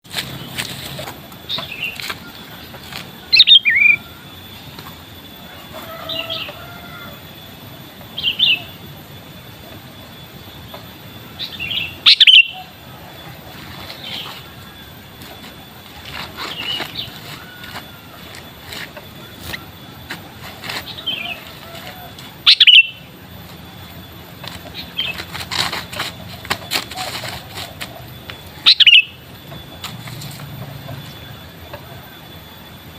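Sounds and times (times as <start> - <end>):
wing and perch rustles: 0.0 - 4.0, 11.7 - 31.3
bird chirping calls: 0.2 - 7.4, 8.1 - 9.0, 11.2 - 32.2.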